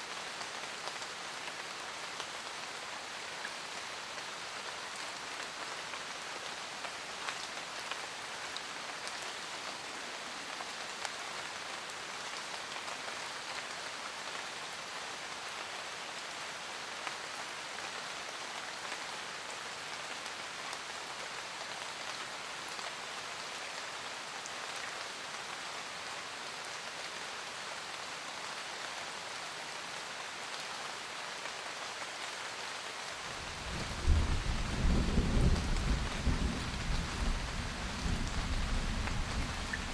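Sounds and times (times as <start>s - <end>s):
rain pattering on a van roof: 0.0s - 39.9s
loud low thunder rumble: 33.5s - 39.9s.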